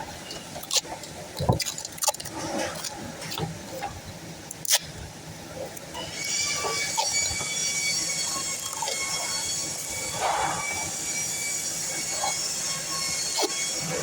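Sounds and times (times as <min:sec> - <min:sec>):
saw blade screeching through metal: 0:06.0 - 0:14.0.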